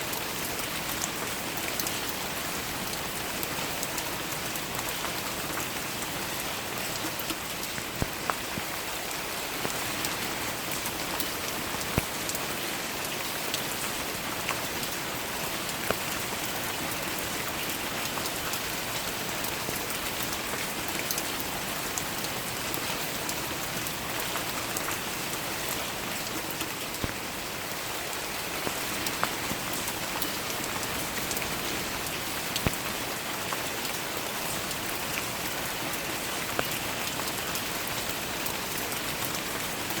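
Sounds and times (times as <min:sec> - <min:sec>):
rain on petals and leaves: 0:00.0 - 0:40.0.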